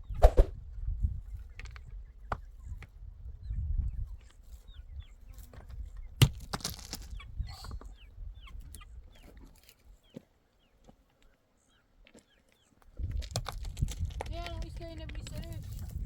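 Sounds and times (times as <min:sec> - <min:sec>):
chickens clucking: 0:07.1 - 0:12.9.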